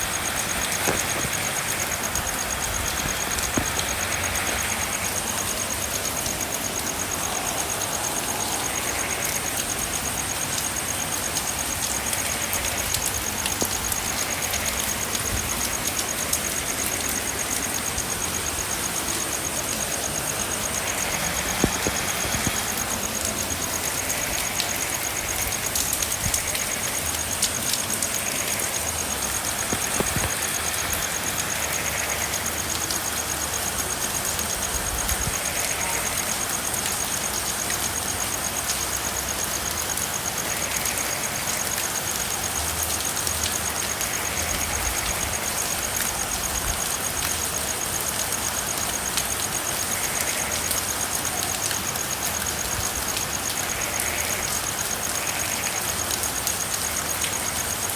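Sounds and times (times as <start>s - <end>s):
frogs calling: 0.0s - 57.9s
steady rain falling: 0.0s - 57.9s
drop ticks: 29.6s - 30.4s.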